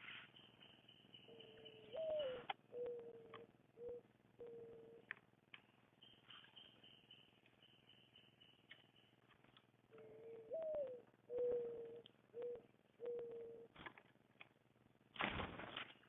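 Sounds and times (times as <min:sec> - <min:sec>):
dove cooing: 0:01.3 - 0:05.1, 0:09.9 - 0:13.8.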